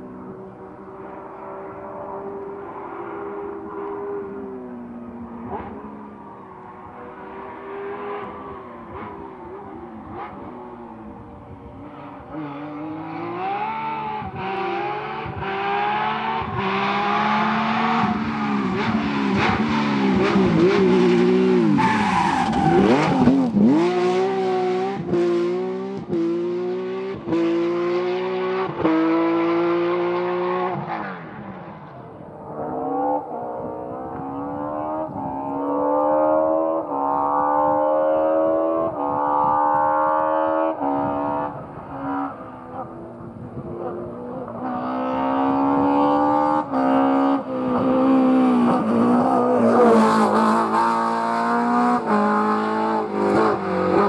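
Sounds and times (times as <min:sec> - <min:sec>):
rally car engine revving past: 0:06.9 - 0:54.0.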